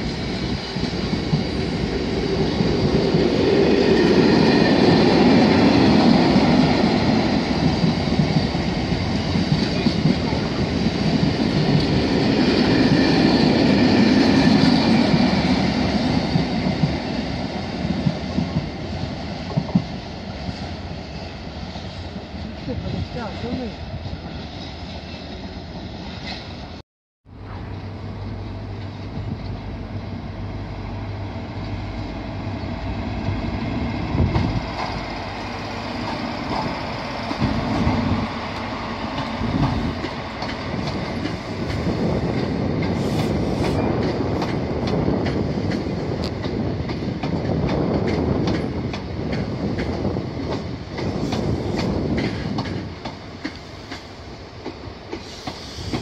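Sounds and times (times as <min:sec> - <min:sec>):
train wheels clicking over rail joints: 0:35.9 - 0:56.0.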